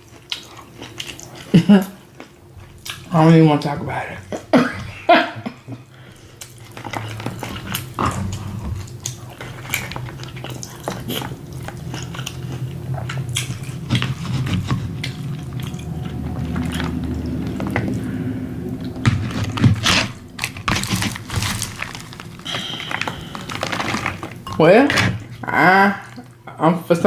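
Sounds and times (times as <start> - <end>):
chewing crunches: 0.0 - 3.1, 6.2 - 24.6
low steady hum: 0.0 - 27.0.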